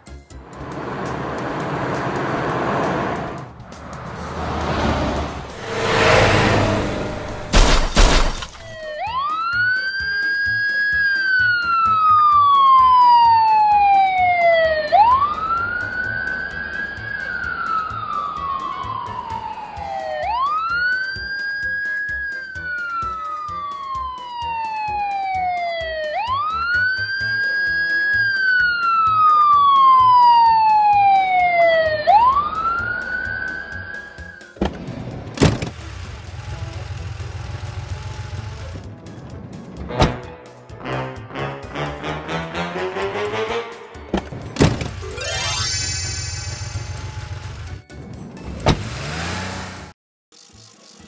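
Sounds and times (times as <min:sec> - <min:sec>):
ambulance siren wailing: 0:08.5 - 0:34.6, 0:42.6 - 0:47.8.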